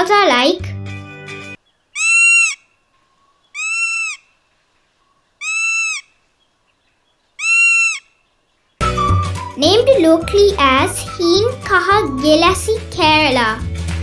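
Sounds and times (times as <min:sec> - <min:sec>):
woodpecker whistled calls: 0:01.7 - 0:04.4, 0:05.0 - 0:12.5.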